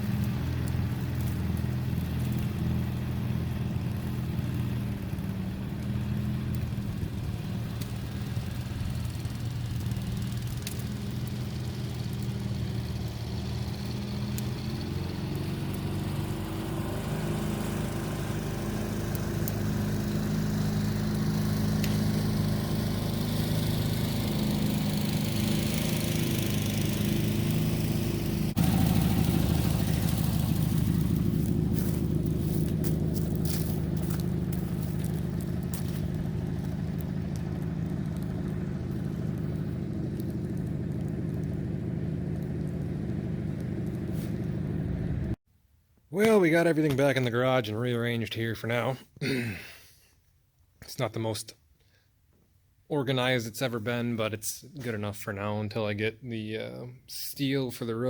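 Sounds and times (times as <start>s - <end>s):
engine idling: 0.0s - 45.4s.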